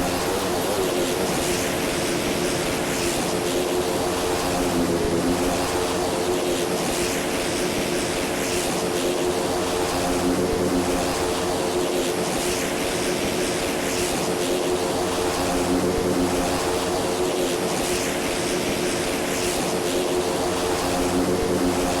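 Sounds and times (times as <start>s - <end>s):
propeller engine droning: 0.0s - 22.0s.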